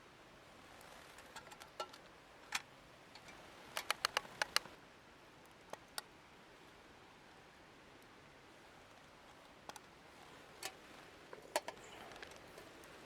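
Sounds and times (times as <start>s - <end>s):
faint steady background noise: 0.0s - 13.0s
sharp clicks: 3.2s - 4.8s.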